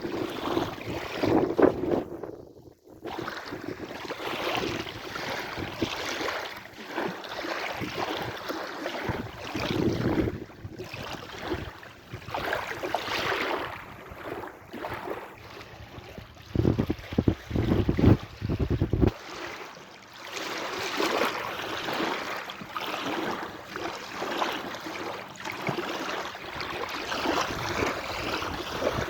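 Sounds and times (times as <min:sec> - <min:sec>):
wind gusting on microphone: 0:00.1 - 0:03.8, 0:09.1 - 0:12.6, 0:15.7 - 0:19.2, 0:27.2 - 0:29.0
sea waves washing: 0:04.1 - 0:29.0.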